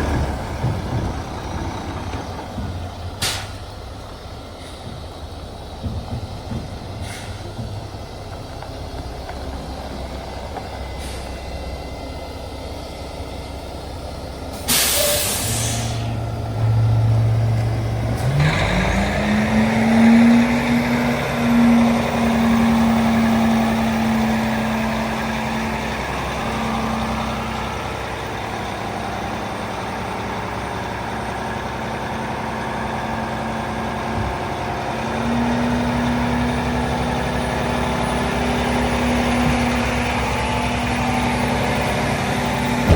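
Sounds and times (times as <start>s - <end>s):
diesel truck engine idling: 0.0s - 42.9s
loud air hiss: 14.6s - 16.2s.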